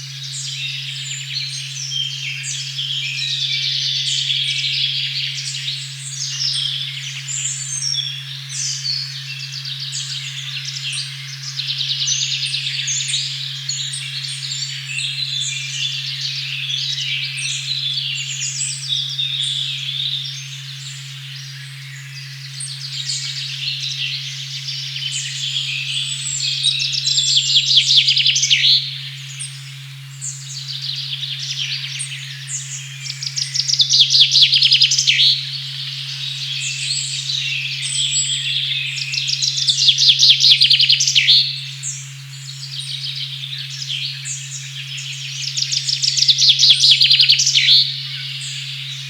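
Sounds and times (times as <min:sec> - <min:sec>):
low sine tone hum: 0:00.0 - 0:49.0
songbirds singing and chirping: 0:00.0 - 0:49.0.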